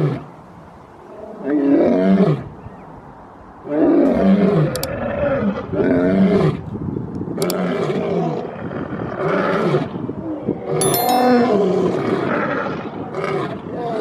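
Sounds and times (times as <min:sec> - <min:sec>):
short high ringing chime: 0:10.8 - 0:12.0.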